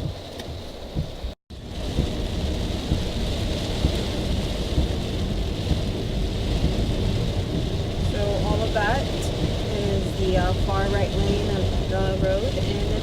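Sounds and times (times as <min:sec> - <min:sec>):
heavy low rumble: 0:00.0 - 0:13.0
heavy rain: 0:00.0 - 0:13.0.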